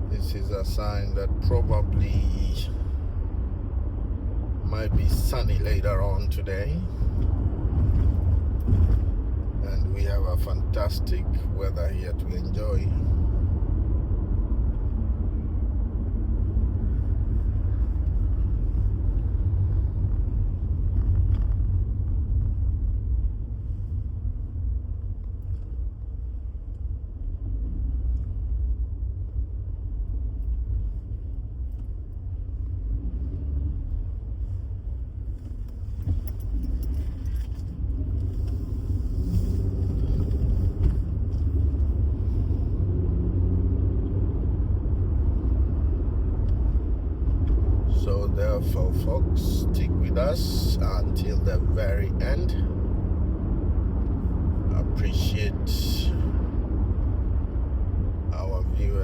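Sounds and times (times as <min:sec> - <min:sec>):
car engine and tyre noise: 0:00.0 - 0:59.0.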